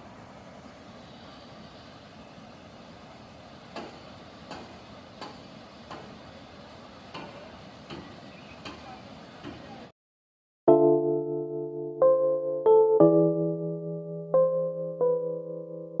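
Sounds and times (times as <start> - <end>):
steady hiss: 0.0 - 9.8.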